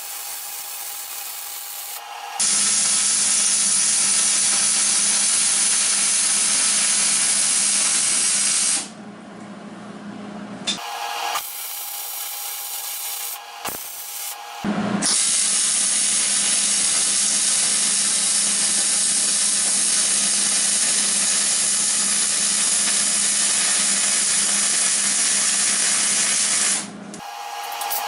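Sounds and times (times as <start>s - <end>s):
welding hiss with low hum: 0.0s - 9.0s, 11.3s - 27.0s
workshop background noise: 0.0s - 28.0s.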